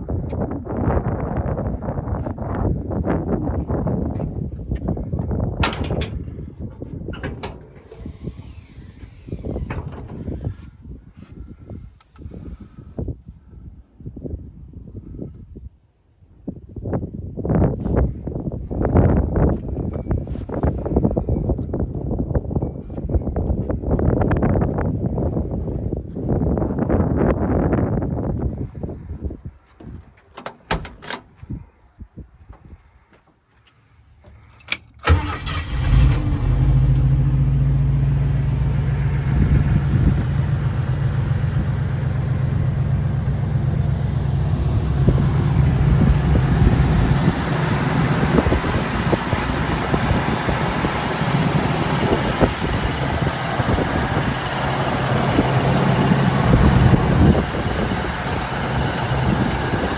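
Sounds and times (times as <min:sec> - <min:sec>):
car engine starting and idling: 0:05.2 - 0:10.6, 0:34.7 - 0:59.9.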